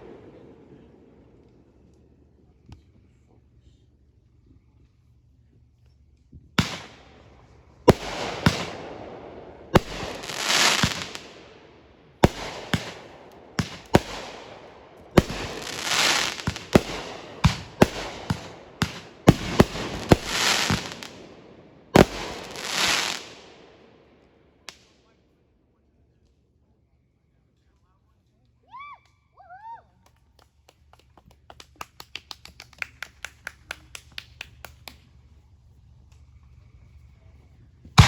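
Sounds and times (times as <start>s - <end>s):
fireworks bangs: 0.0s - 2.2s, 6.4s - 24.2s
fireworks rushing crackle: 6.6s - 23.8s.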